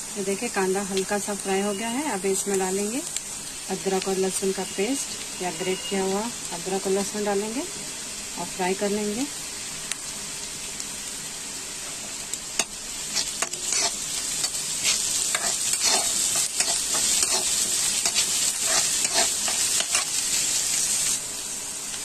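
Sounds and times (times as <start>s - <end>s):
vegetables sizzling in hot oil: 0.0s - 22.0s
spatula scraping a pan: 12.6s - 20.8s.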